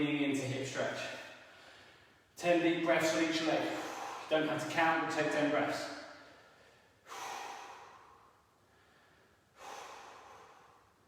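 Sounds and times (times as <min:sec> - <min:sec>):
man breathing out deeply: 0:03.6 - 0:04.3, 0:06.2 - 0:11.0.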